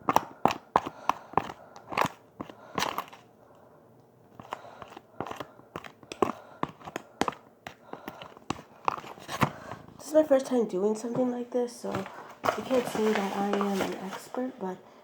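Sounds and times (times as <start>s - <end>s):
spoon clicking and scraping bowl: 0.0s - 3.3s, 4.3s - 9.4s
spoon stirring gritty mixture: 0.0s - 10.1s, 11.7s - 14.6s.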